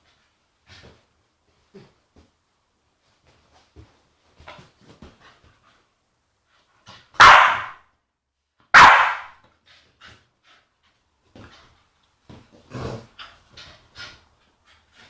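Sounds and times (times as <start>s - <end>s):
dog barking: 7.2s - 7.8s, 8.8s - 9.3s.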